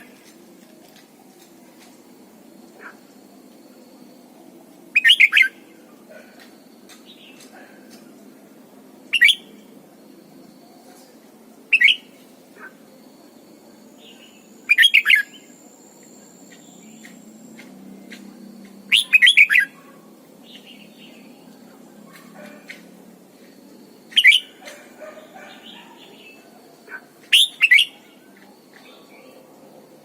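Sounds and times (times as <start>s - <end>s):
bird singing: 4.9s - 7.7s, 9.0s - 9.7s, 10.4s - 13.0s, 13.9s - 30.0s.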